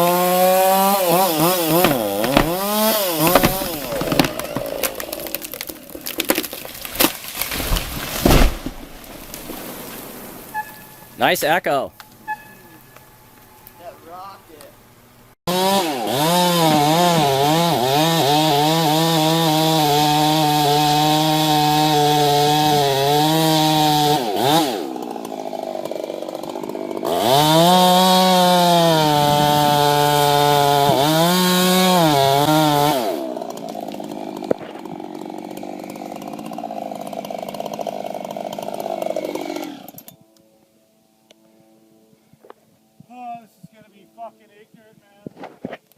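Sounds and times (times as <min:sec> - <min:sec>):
chainsaw cutting wood: 0:00.0 - 0:11.0, 0:15.5 - 0:40.3
quieter steady noise: 0:08.3 - 0:15.4.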